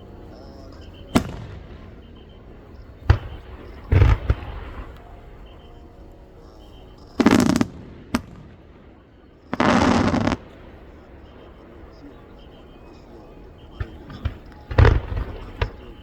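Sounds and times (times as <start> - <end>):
firework shells bursting: 0.8 - 5.0, 7.0 - 10.9, 13.8 - 16.0.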